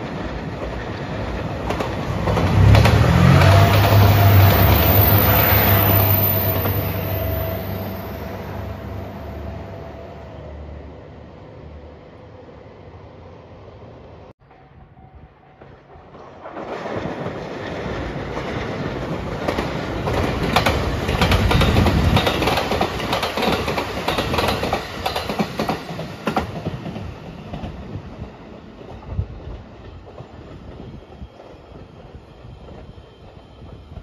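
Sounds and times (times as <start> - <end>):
train wheels clicking over rail joints: 15.6 - 27.8.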